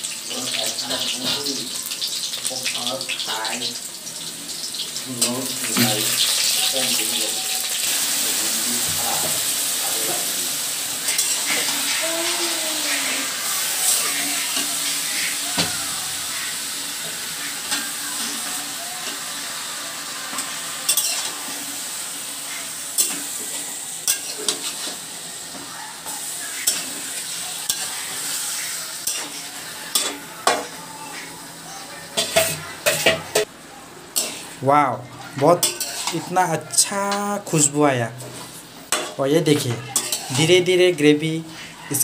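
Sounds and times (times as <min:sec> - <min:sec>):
food sizzling in hot oil: 0:00.0 - 0:42.0
metal spatula scraping pan: 0:11.0 - 0:12.0, 0:20.4 - 0:21.5, 0:34.2 - 0:34.6, 0:35.6 - 0:36.3.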